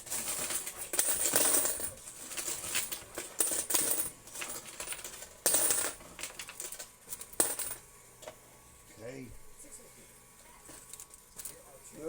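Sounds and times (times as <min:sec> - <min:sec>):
coins clinking on metal: 0:00.0 - 0:07.8
coins spilling: 0:00.0 - 0:07.8.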